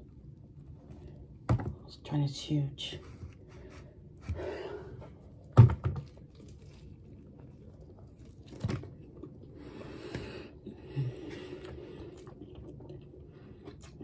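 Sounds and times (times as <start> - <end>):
person chewing a sandwich: 3.0 - 14.0.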